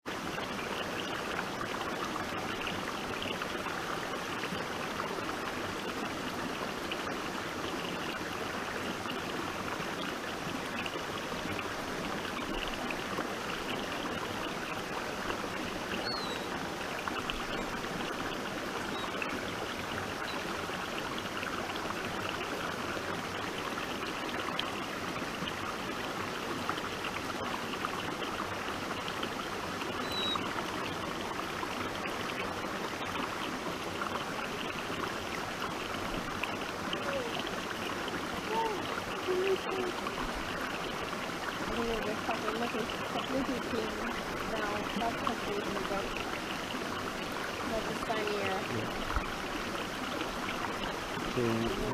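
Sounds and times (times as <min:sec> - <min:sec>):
stream water trickling over rocks: 0:00.0 - 0:51.9.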